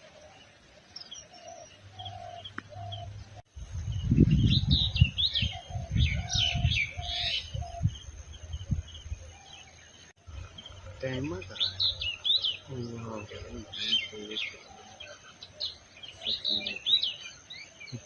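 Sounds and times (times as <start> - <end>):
small birds chirping: 0.0 - 18.0
dove cooing: 1.2 - 3.4
wind buffeting microphone: 3.2 - 9.4.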